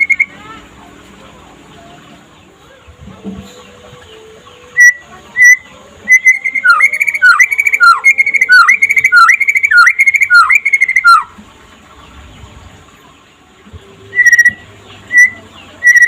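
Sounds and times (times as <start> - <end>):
bird singing whistled phrases: 0.0 - 0.4, 4.7 - 11.3, 14.1 - 16.0.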